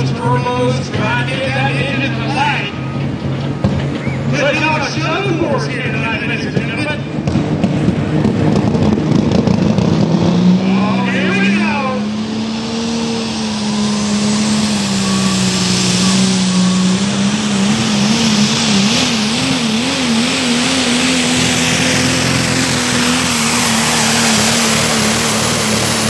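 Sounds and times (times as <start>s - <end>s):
vehicle engine at high revs: 0.0s - 26.0s
loud rushing hiss: 12.4s - 26.0s.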